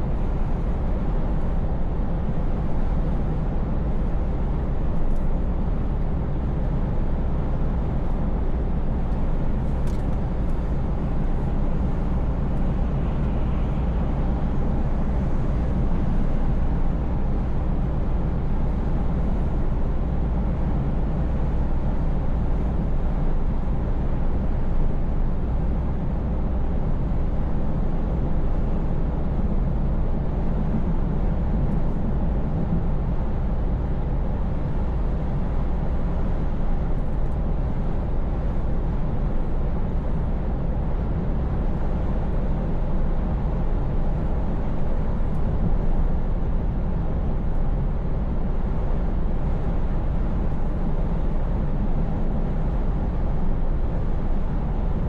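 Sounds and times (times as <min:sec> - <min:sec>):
road and tyre noise: 0:00.0 - 0:55.0.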